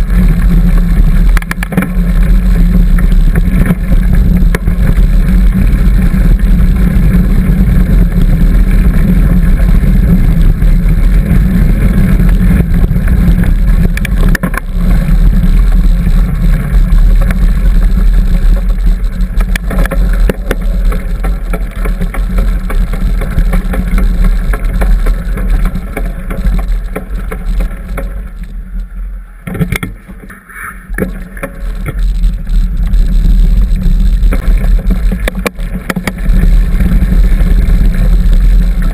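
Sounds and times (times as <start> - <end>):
wind buffeting microphone: 0.0 - 28.5
bike clicks and rattles: 0.0 - 38.9.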